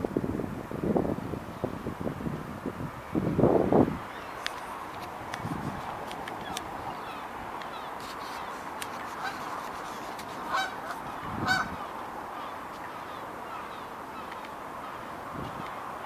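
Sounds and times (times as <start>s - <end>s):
steady background hiss: 0.0s - 16.0s
waterfowl calls: 6.4s - 15.6s.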